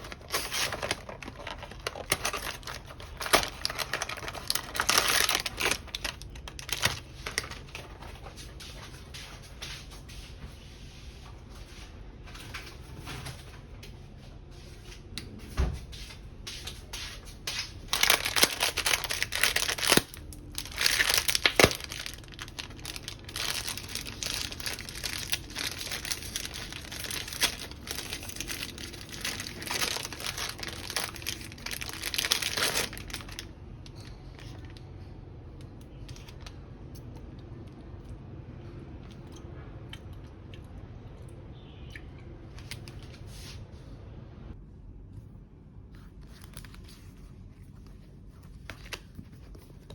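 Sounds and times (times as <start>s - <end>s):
packaging crinkling and tearing: 0.0s - 8.3s, 17.5s - 35.0s, 46.0s - 49.9s.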